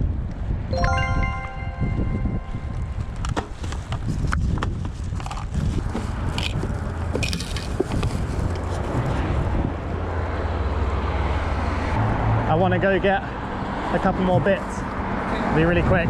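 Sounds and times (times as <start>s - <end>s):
road traffic rumble: 2.8s - 16.0s.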